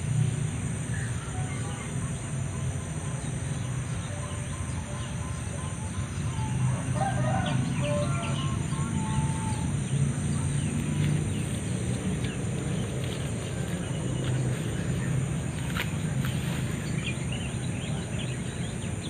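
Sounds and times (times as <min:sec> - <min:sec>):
high buzz of insects: 0:00.0 - 0:19.0
low hum: 0:00.0 - 0:19.0
rooster crowing: 0:06.6 - 0:09.7.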